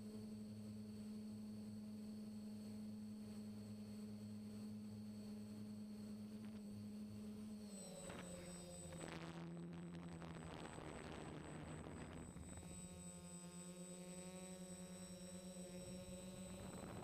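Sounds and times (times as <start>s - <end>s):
high-pitched whine: 4.8s - 17.0s
drone motors humming: 6.1s - 17.0s.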